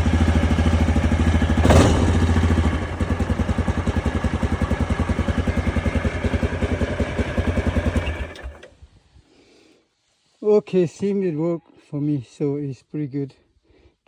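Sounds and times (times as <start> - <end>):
engine idling: 0.0 - 8.7.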